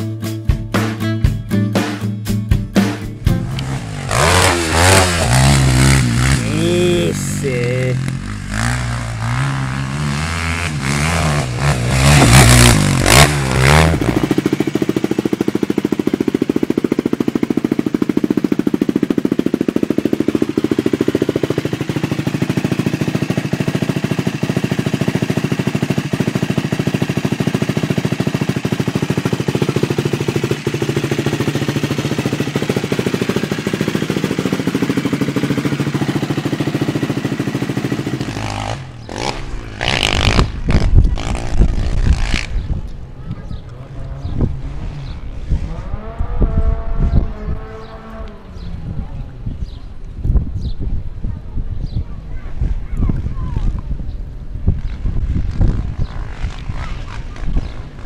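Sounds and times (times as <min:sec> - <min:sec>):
quad engine idling: 0:03.2 - 0:41.6
quad engine revving: 0:03.2 - 0:49.8, 0:54.7 - 0:58.0.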